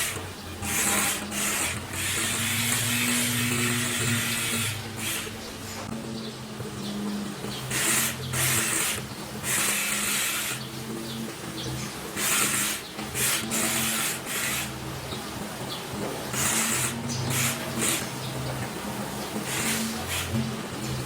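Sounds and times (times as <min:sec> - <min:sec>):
hair being cut rasping: 0:00.0 - 0:05.9, 0:07.5 - 0:21.0.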